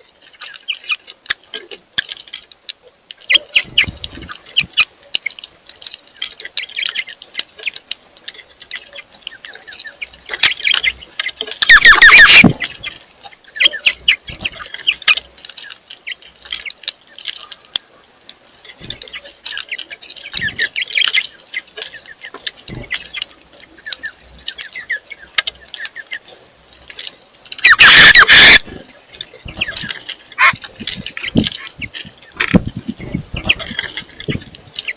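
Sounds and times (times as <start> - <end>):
birds chirping: 0.0 - 34.9
loud harsh bird squawk: 11.6 - 12.6, 27.6 - 28.8.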